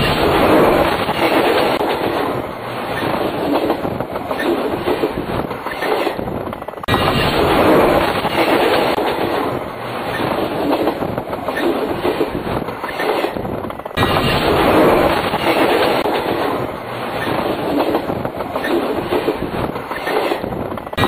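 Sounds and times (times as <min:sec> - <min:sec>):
rumble and clatter of train wheels: 0:00.0 - 0:21.0.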